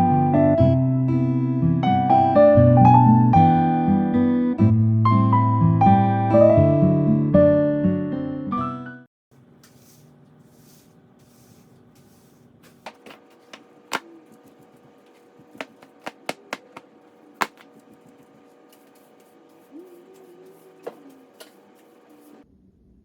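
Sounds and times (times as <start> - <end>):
appliance hum: 9.3 - 22.5
objects clicking and knocking: 12.6 - 19.0.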